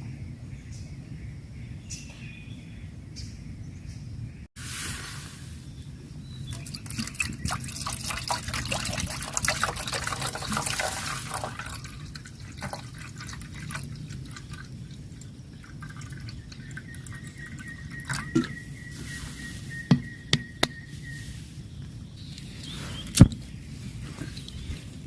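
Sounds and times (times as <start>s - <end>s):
water dripping and splashing: 6.5s - 18.6s.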